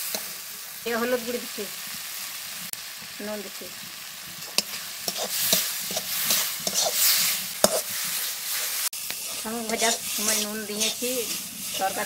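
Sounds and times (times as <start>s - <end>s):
spice paste sizzling in a wok: 0.0s - 12.0s
metal spatula scraping a pan: 4.4s - 12.0s.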